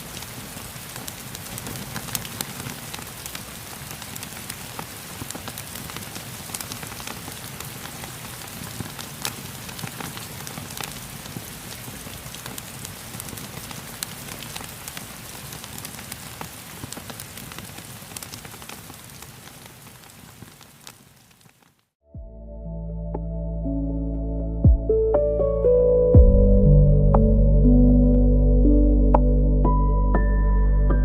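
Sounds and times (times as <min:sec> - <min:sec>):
rain falling: 0:00.0 - 0:21.9
wood fire crackling: 0:00.0 - 0:22.0.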